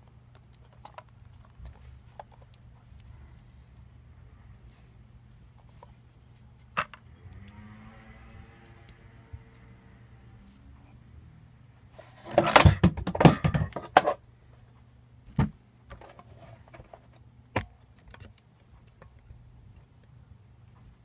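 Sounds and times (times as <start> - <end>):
plastic parts clattering and clicking: 12.2 - 14.2.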